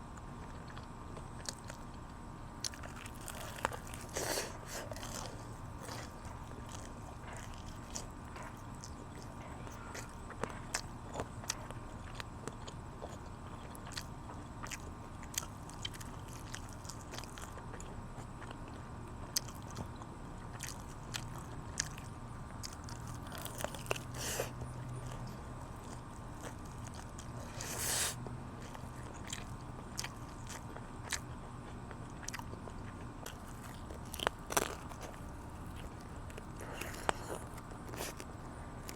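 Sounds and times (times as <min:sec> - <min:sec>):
crunchy chewing of chicken wings: 0:00.0 - 0:38.9
low steady hum: 0:00.0 - 0:38.9.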